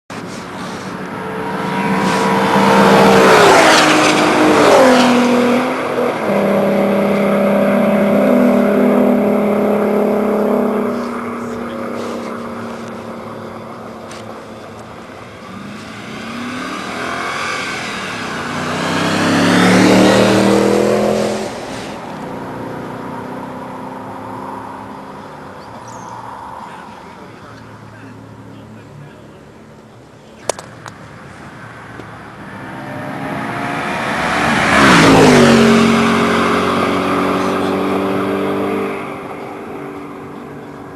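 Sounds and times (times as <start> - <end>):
cars revving past: 0.1 - 29.8, 30.6 - 40.9.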